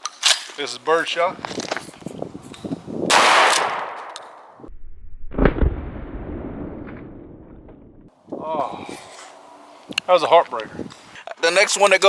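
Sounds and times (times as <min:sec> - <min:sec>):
shotgun blast: 0:03.1 - 0:04.4
deep boom: 0:04.6 - 0:08.1.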